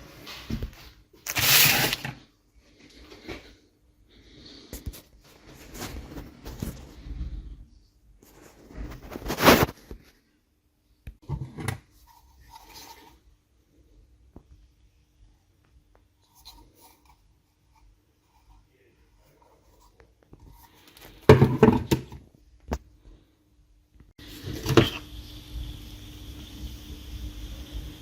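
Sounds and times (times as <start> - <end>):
faint rubbing and handling noises: 0.0 - 10.5, 11.2 - 14.8, 15.5 - 21.3.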